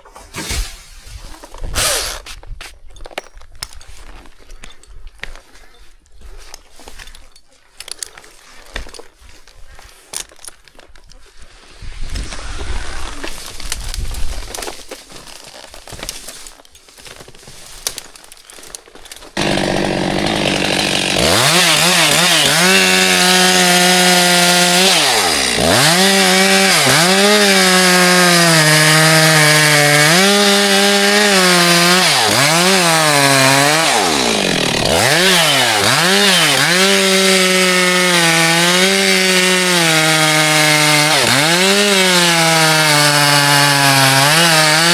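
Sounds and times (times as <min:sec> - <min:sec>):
chainsaw cutting wood: 0:01.7 - 0:02.4, 0:19.3 - 0:44.9
rustling: 0:05.4 - 0:19.4.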